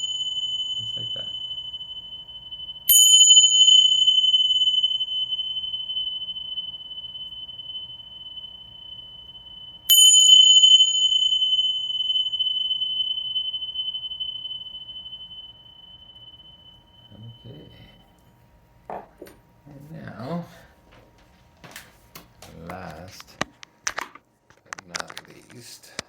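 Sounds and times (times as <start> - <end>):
tingsha cymbals ringing: 0.0 - 18.4.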